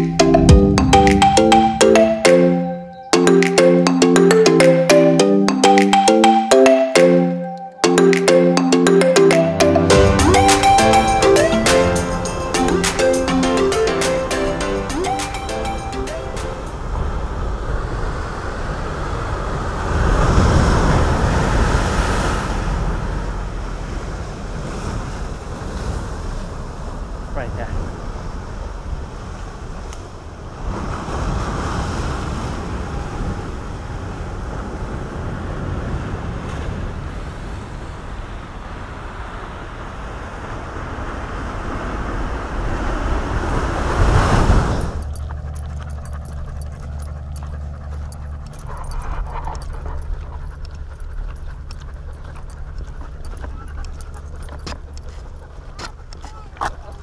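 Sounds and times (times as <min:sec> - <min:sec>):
steady low hum: 0:44.8 - 0:56.1
dog panting: 0:44.8 - 0:57.0.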